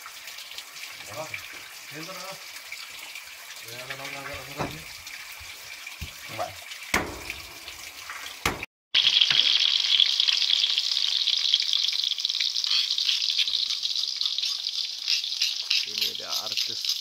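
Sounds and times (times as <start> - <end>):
food sizzling in a wok: 9.0 - 17.0.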